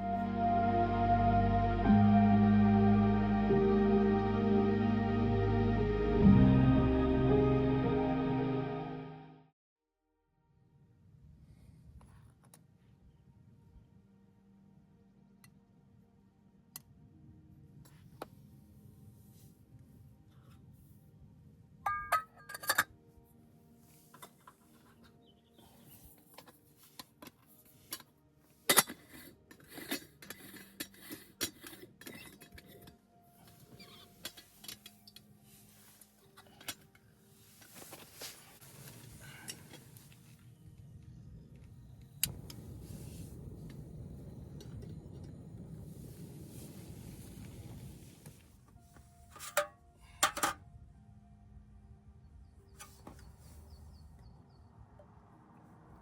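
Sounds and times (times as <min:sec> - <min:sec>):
metal cookware clinking: 0:21.9 - 0:22.9.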